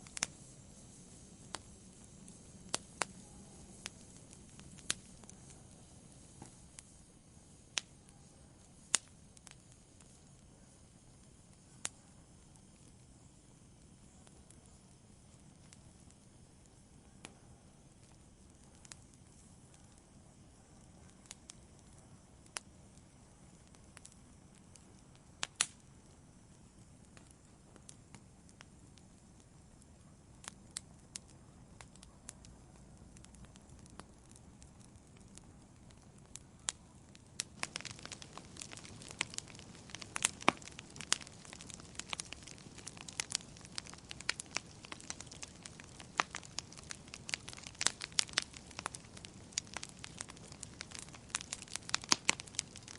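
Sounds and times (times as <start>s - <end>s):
campfire crackling and popping: 0.0s - 52.9s
low fire hiss: 0.0s - 52.9s.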